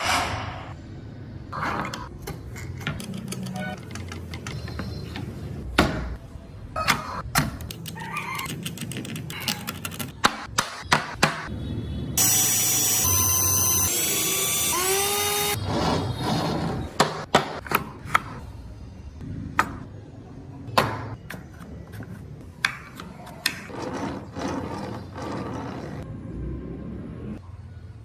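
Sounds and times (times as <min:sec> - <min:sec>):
rough scraping: 0:23.5 - 0:26.1.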